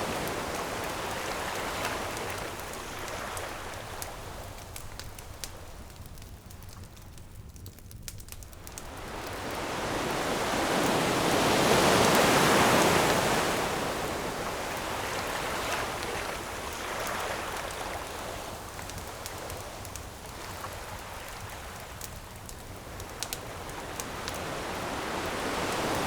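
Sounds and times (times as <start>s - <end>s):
ocean wave breaking on shore: 0.0s - 5.2s, 8.6s - 18.8s, 23.5s - 26.0s
faint campfire crackling: 0.0s - 26.0s.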